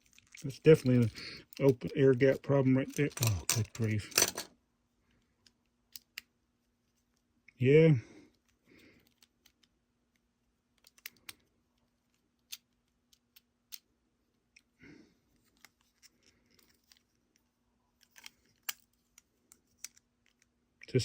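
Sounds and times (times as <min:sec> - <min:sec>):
toy train parts clicking: 0:02.8 - 0:04.5.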